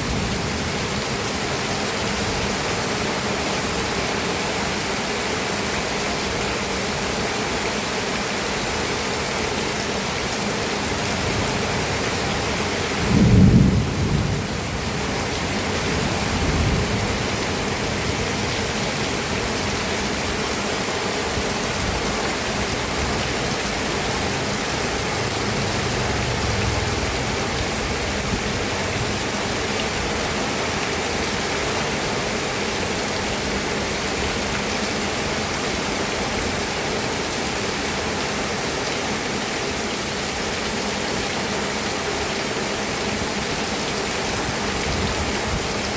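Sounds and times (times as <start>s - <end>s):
steady rain falling: 0.0s - 45.9s
thunder rumbling: 13.0s - 18.2s, 24.1s - 29.1s.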